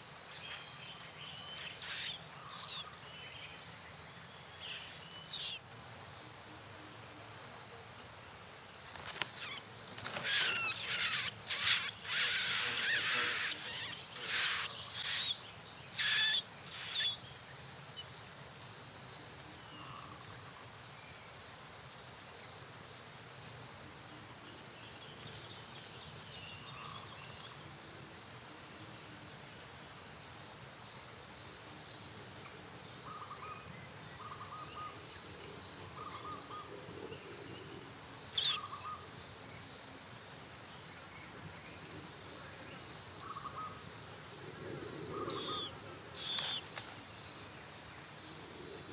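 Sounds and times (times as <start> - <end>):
insects chirring: 0.0 - 48.9.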